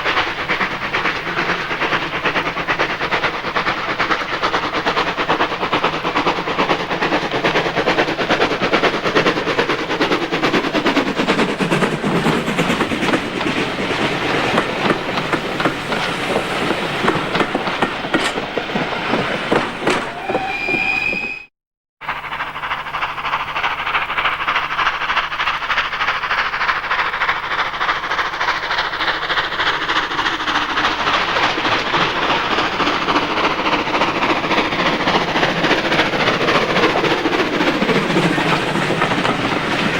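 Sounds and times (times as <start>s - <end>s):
wheels clattering on rail joints: 0.0s - 21.4s, 22.0s - 39.9s
steam locomotive chuffing: 0.0s - 39.9s
train whistle: 19.9s - 21.5s.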